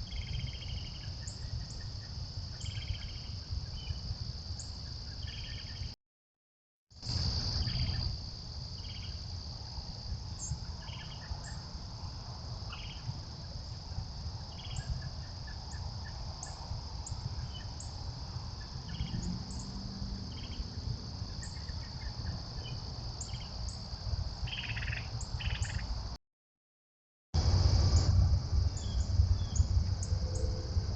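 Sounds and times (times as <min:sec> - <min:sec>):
cricket chirps: 0:00.0 - 0:06.0, 0:06.9 - 0:26.2, 0:27.4 - 0:30.9
insect chorus: 0:00.0 - 0:06.0, 0:06.9 - 0:26.2, 0:27.4 - 0:30.9
low rumble: 0:27.4 - 0:30.9.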